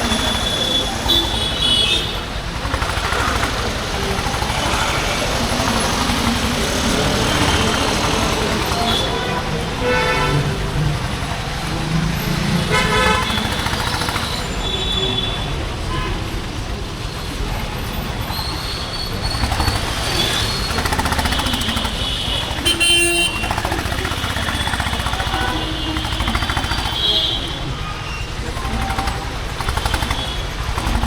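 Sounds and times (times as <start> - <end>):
vehicle horns tooting: 0.0 - 16.6, 18.4 - 31.0
motorcycle engine rumbling: 0.0 - 31.0.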